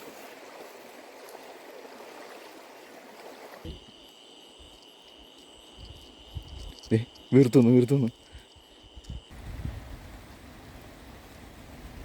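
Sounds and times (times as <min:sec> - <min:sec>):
rushing water: 0:00.0 - 0:03.9, 0:09.3 - 0:12.0
high insect trill: 0:00.0 - 0:11.8.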